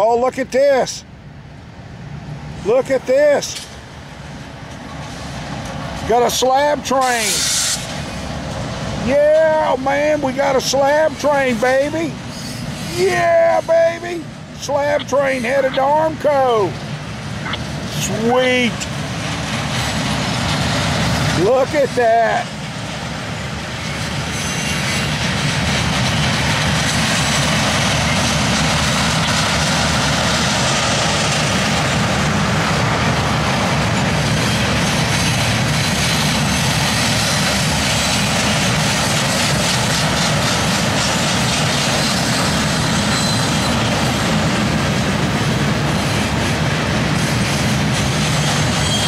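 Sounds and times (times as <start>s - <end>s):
freight train wheels rumbling on rails: 0.0s - 49.0s
thin wheel squeal: 12.3s - 12.9s, 24.3s - 25.0s, 43.0s - 43.8s, 48.4s - 49.0s.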